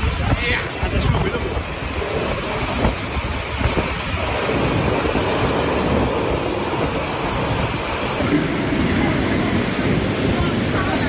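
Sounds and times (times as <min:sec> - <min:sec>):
storm wind buffeting microphone: 0:00.0 - 0:11.0.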